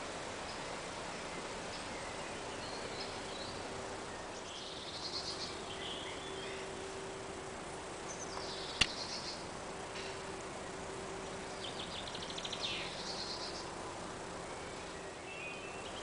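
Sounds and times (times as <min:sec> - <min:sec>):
faint steady hum: 0:00.0 - 0:16.0
songbirds singing: 0:00.0 - 0:16.0
sharp click: 0:08.4 - 0:09.0.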